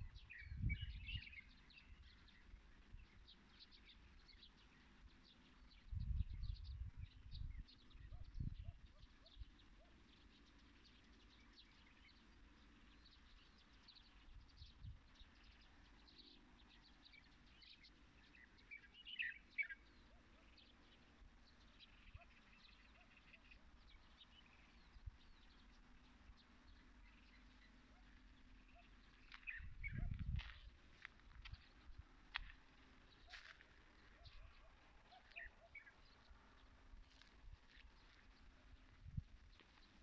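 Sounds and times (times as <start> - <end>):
small birds chirping: 0.0 - 40.0
bird trill: 34.1 - 36.3.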